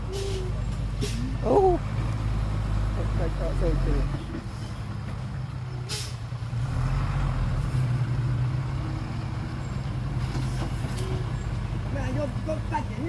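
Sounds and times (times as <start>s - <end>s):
diesel truck engine running: 0.0s - 13.0s
air brake hiss: 1.0s - 1.3s, 5.9s - 6.2s.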